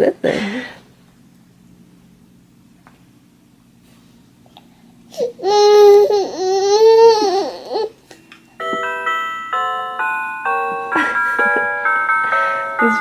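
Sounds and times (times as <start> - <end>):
electronic toy melody: 8.6 - 13.0.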